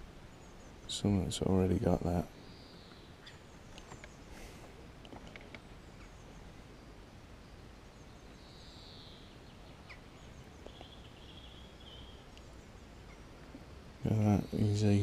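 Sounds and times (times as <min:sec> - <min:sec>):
distant bird calls: 0:00.0 - 0:15.0
faint background noise: 0:00.0 - 0:15.0.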